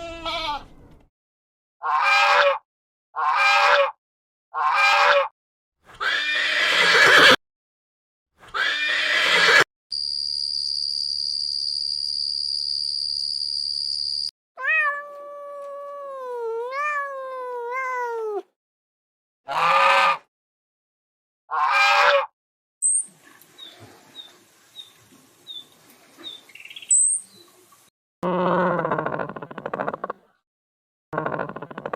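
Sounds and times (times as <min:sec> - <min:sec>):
harsh animal calls: 0:01.8 - 0:02.6, 0:03.2 - 0:04.0, 0:04.6 - 0:05.3, 0:19.5 - 0:20.3, 0:21.5 - 0:22.3, 0:28.2 - 0:30.2, 0:31.1 - 0:31.9.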